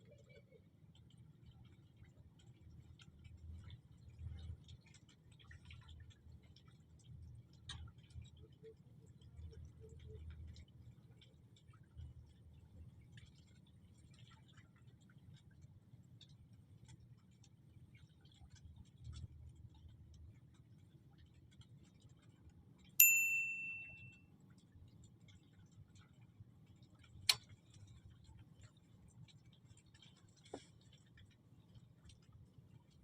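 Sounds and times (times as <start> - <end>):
bright metallic ping: 23.0 - 24.1.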